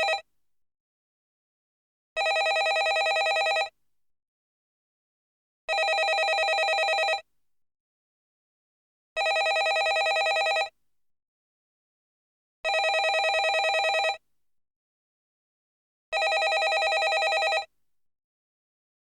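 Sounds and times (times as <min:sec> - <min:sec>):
landline telephone ringing: 0:00.0 - 0:00.2, 0:02.2 - 0:03.7, 0:05.7 - 0:07.2, 0:09.2 - 0:10.7, 0:12.7 - 0:14.2, 0:16.2 - 0:17.7.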